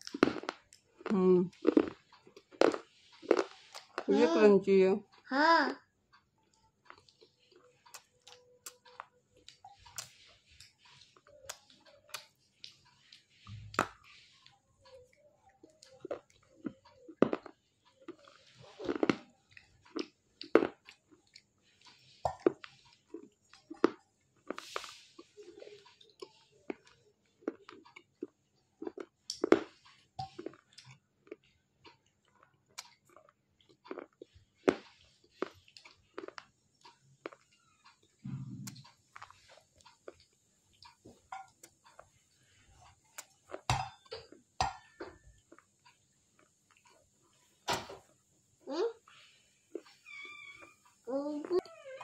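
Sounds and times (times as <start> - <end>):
person chewing with crunches: 0.0 - 4.2, 6.4 - 47.6, 49.0 - 51.7
small mouth clicks: 37.3 - 39.0.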